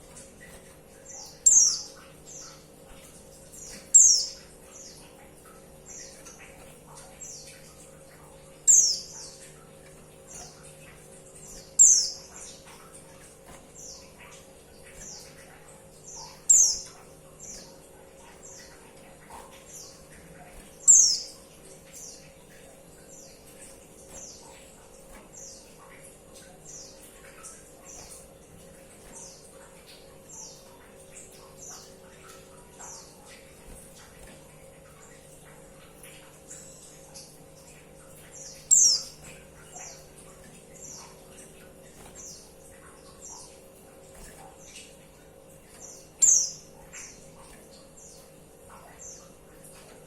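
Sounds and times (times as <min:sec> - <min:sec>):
faint steady hum: 0:00.0 - 0:50.0
bird chirping: 0:01.1 - 0:02.6, 0:03.5 - 0:05.0, 0:08.6 - 0:09.5, 0:11.4 - 0:12.8, 0:15.0 - 0:18.9, 0:20.6 - 0:22.2, 0:38.4 - 0:40.1, 0:45.8 - 0:47.2.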